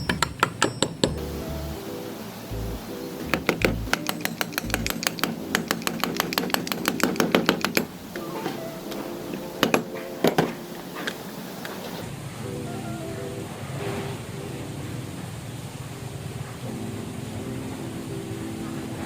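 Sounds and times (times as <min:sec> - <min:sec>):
background music: 0:00.0 - 0:15.3
sharp knocks: 0:03.2 - 0:07.9.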